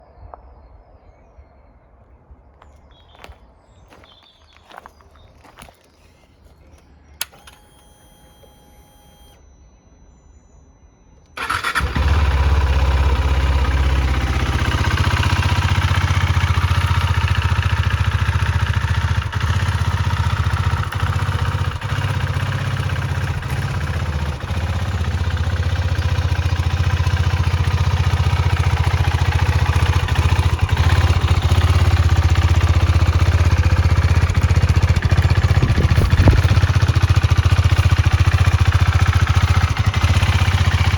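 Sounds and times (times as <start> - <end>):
motorcycle engine starting and idling: 5.5 - 9.4, 11.3 - 40.9
faint steady whine: 6.0 - 11.4.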